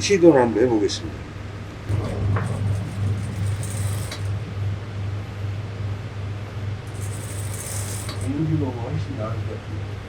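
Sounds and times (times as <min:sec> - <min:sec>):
sewing machine running: 0:01.9 - 0:04.4, 0:06.9 - 0:08.5.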